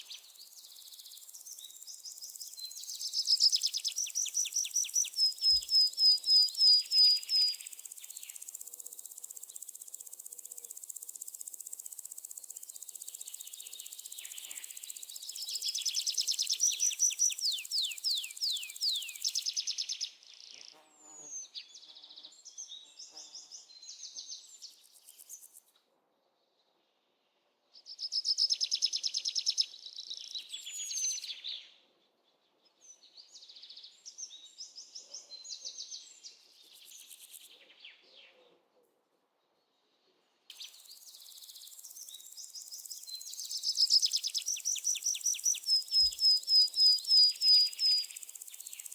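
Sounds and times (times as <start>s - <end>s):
high insect hiss: 0.0s - 21.2s, 24.6s - 25.6s, 36.6s - 37.5s, 40.5s - 48.9s
birds chirping and trilling: 13.3s - 19.5s.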